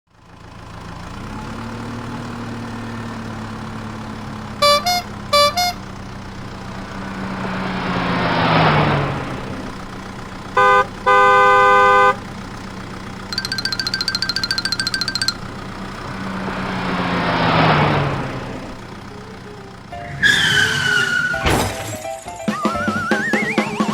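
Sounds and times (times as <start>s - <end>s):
cartoon engine hum: 4.6s - 5.8s, 13.4s - 15.6s
fast beeps: 4.6s - 5.8s, 13.4s - 15.5s
horn toots: 4.6s - 5.9s
horn honks: 4.6s - 6.0s, 10.6s - 12.2s.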